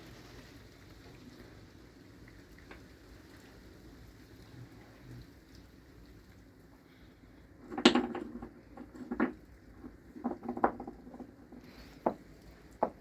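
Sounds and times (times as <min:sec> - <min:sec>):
hard objects knocking and clinking: 0:07.6 - 0:13.0.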